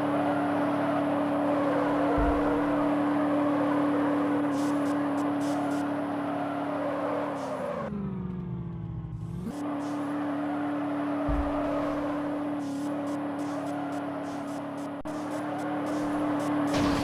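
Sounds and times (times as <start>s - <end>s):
vehicle engine running: 0.0s - 17.0s
low thump: 2.1s - 2.9s, 11.3s - 12.1s.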